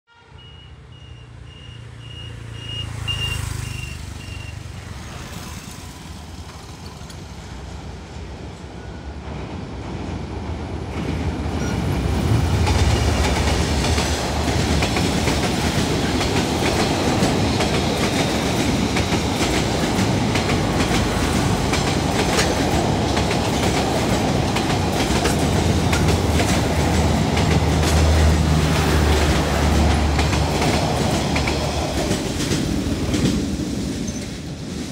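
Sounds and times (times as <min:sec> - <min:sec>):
diesel locomotive engine hum: 0:00.1 - 0:34.9
train coaches rumbling past: 0:00.1 - 0:34.9
wheels clacking over rail joints: 0:10.9 - 0:34.9.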